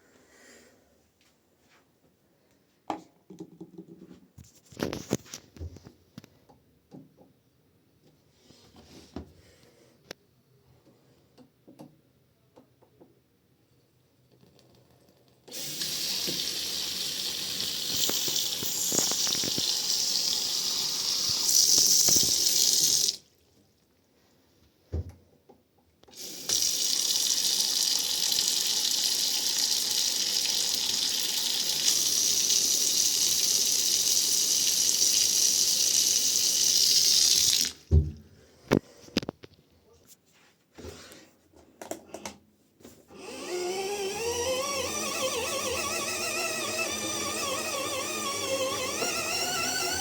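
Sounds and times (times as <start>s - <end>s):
water running: 15.5s - 24.0s, 26.1s - 37.9s.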